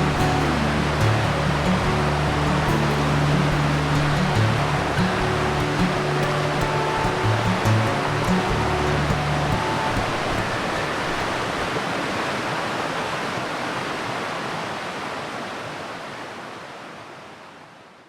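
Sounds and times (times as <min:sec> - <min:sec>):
background music: 0:00.0 - 0:11.7
steady rushing noise: 0:00.0 - 0:12.7.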